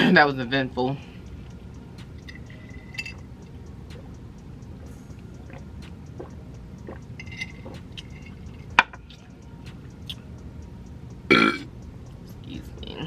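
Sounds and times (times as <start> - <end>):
chewing with mouth smacks: 5.4 - 10.3.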